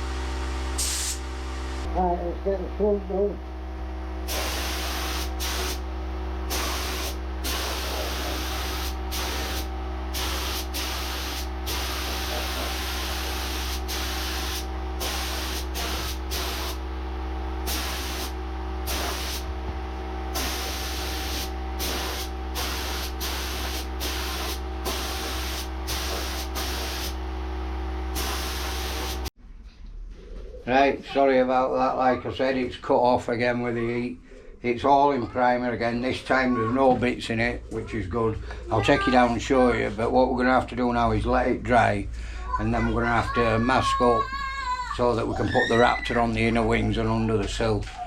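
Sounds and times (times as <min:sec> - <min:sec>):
steady machine hum: 0:00.0 - 0:29.3, 0:37.0 - 0:44.2
spray gun hissing: 0:00.7 - 0:01.3, 0:04.2 - 0:16.8, 0:17.6 - 0:19.5, 0:20.3 - 0:27.2, 0:28.1 - 0:29.3.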